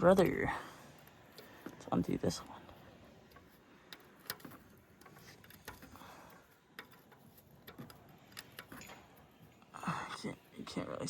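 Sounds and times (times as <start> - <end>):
wrench clicking: 3.3 - 9.2.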